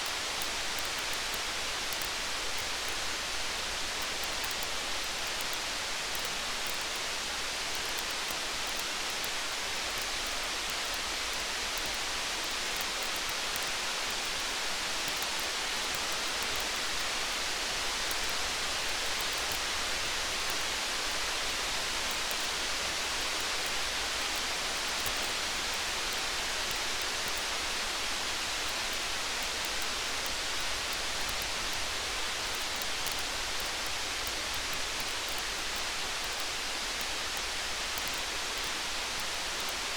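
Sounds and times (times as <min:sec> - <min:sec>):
faint small ticks: 0:00.0 - 0:39.9
rain falling steadily: 0:00.0 - 0:39.9.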